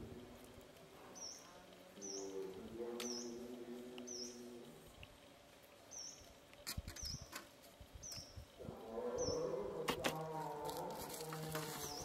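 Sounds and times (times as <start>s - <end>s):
bird chirping: 1.1s - 4.6s, 5.8s - 7.4s, 8.0s - 8.5s.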